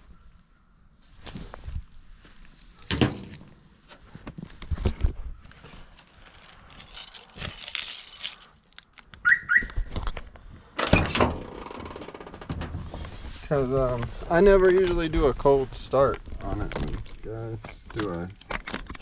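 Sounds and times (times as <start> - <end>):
keys jingling: 5.8 - 9.1, 16.2 - 19.0
knocks and thumps: 11.0 - 13.3.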